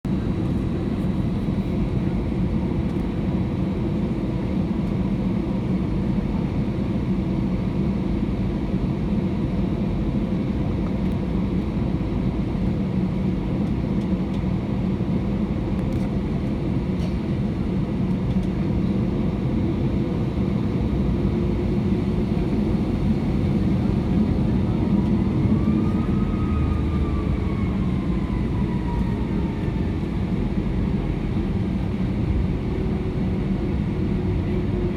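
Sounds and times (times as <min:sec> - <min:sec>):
engine whine: 0:00.1 - 0:34.9
airplane cabin rumble: 0:10.4 - 0:34.9.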